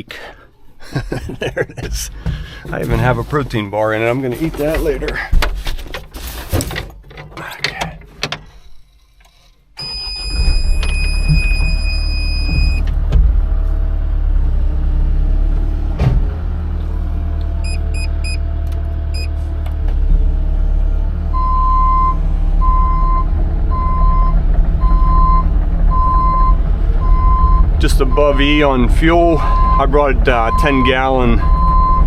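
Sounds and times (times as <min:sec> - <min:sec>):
cab warning beeps: 0:09.8 - 0:12.9, 0:17.6 - 0:18.4, 0:19.1 - 0:19.4, 0:21.4 - 0:28.5, 0:29.4 - 0:32.0
diesel engine idling: 0:12.8 - 0:32.0
high warning tone: 0:29.4 - 0:32.0.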